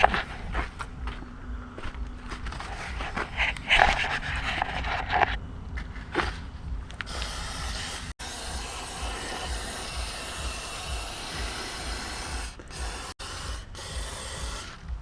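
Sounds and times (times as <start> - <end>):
low background rumble: 0.0 - 11.2
cleaning fluid spray hissing: 7.0 - 15.0.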